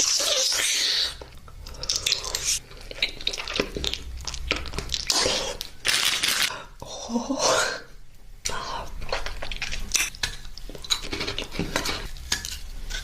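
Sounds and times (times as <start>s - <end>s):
person chewing crunchy food: 1.2s - 6.5s, 9.0s - 13.0s.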